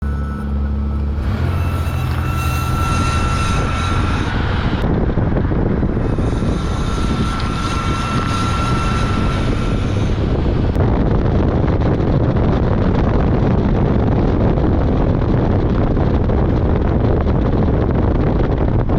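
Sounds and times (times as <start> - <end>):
high brake squeal: 0.0 - 4.9, 5.9 - 10.8.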